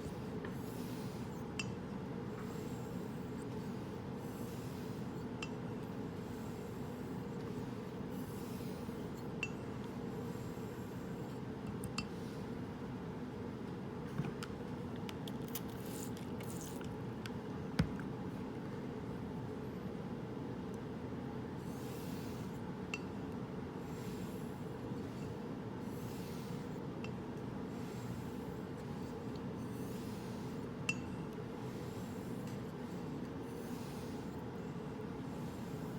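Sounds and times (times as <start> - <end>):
steady low hum: 0.0 - 35.9
razor strokes on whetstone: 23.9 - 26.8, 27.8 - 35.9.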